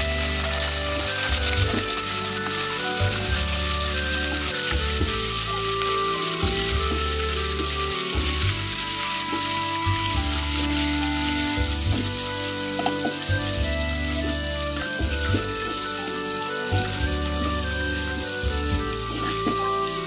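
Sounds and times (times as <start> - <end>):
background music: 0.0 - 20.0
vegetables sizzling in oil: 0.0 - 20.0.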